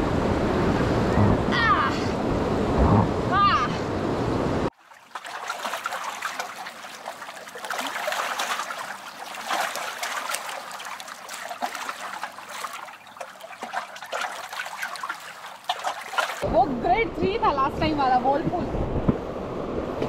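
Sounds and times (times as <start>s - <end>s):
river water splashing: 4.7s - 16.5s.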